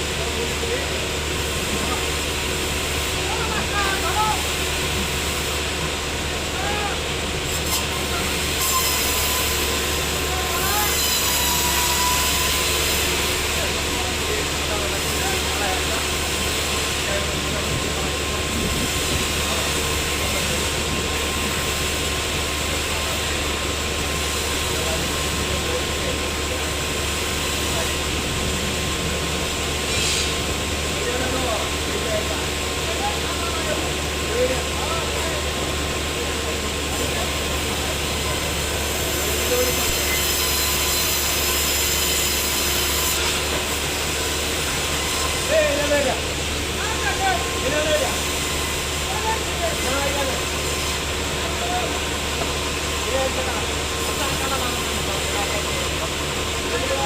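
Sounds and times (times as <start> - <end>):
sawmill machinery running: 0.0 - 57.0
high-pitched whines: 8.5 - 13.0.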